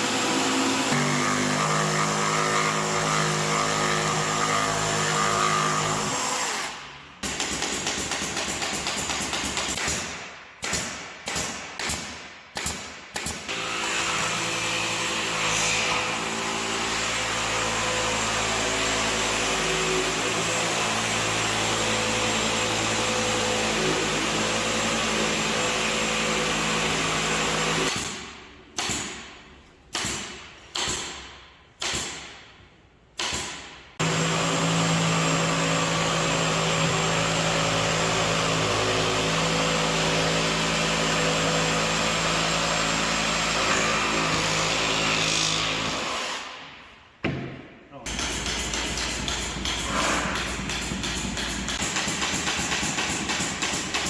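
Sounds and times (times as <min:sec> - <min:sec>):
power tool motor running: 0:34.0 - 0:45.0.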